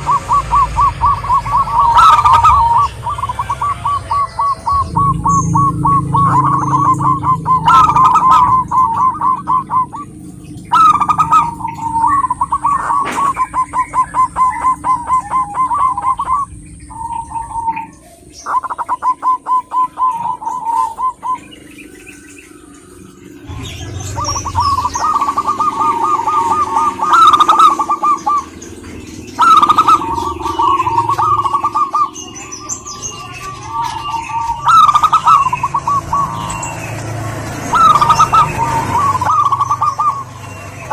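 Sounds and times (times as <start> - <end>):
dove cooing: 0.0 - 21.8, 23.4 - 40.9.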